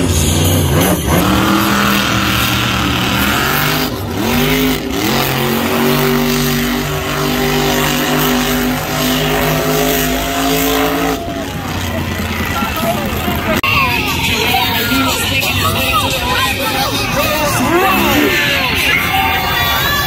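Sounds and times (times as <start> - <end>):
loud engine revving: 0.0 - 13.6.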